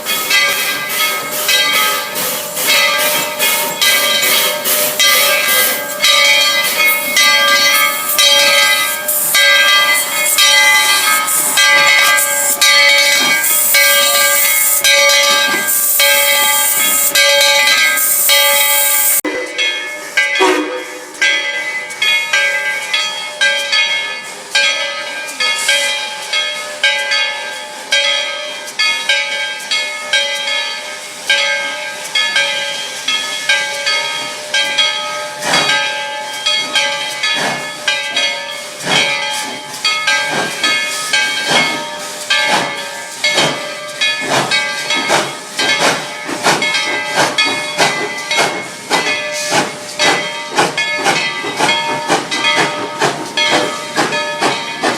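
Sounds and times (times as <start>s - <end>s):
steam hissing: 0.0s - 22.8s, 28.5s - 54.9s
steam puffs: 0.1s - 19.2s, 35.3s - 54.9s
steam whistle tones: 20.4s - 21.1s.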